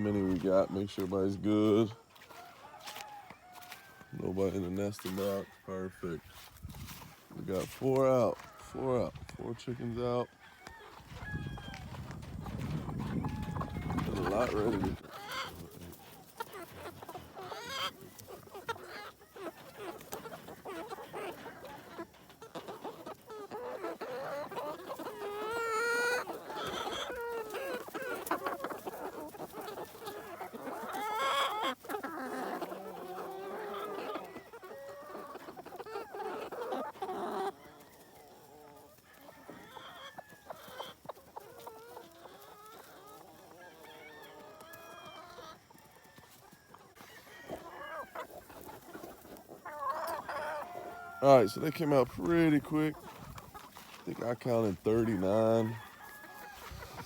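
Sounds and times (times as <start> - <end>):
flock of chickens clucking: 0.0 - 57.0
rooster crowing: 2.3 - 4.2, 10.2 - 12.2, 43.6 - 45.0, 45.8 - 48.2, 55.5 - 57.0.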